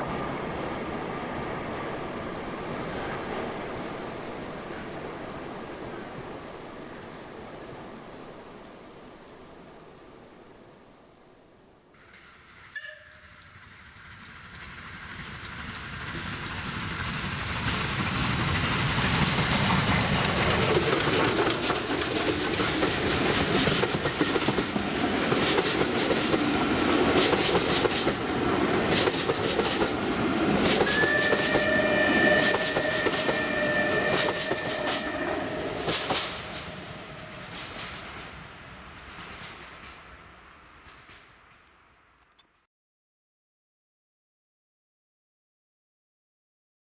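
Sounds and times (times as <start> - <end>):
steam train passing: 0.0 - 42.0
wheels clicking over rail joints: 12.0 - 33.4, 35.8 - 36.8.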